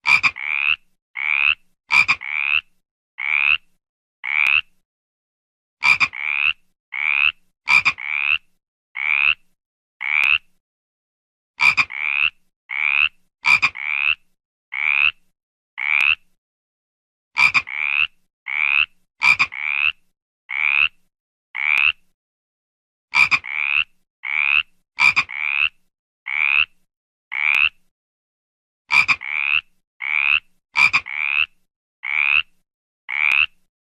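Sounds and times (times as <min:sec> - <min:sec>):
frog croaking: 0:00.1 - 0:04.7, 0:05.8 - 0:09.4, 0:10.0 - 0:10.5, 0:11.6 - 0:15.2, 0:15.8 - 0:16.2, 0:17.4 - 0:21.0, 0:21.6 - 0:22.0, 0:23.2 - 0:27.8, 0:28.9 - 0:32.5, 0:33.1 - 0:33.6.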